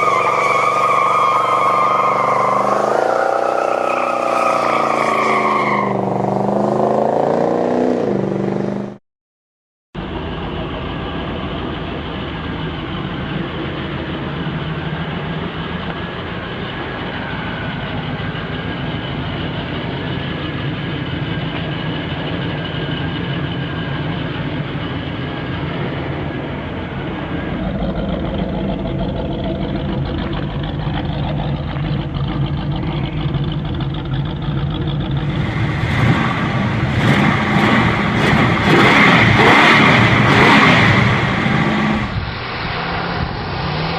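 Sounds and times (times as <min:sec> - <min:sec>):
car engine running steadily: 0:10.0 - 0:43.9
gliding pitch sound: 0:27.2 - 0:33.8.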